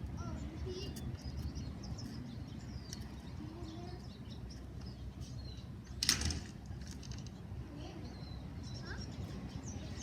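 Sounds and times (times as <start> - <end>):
faint bird chirps: 7.7 - 10.0.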